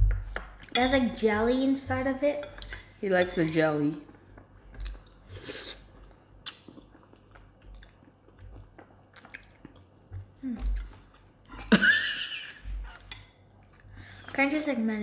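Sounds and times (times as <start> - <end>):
chewing and mouth noises: 4.0 - 11.7, 12.8 - 14.4.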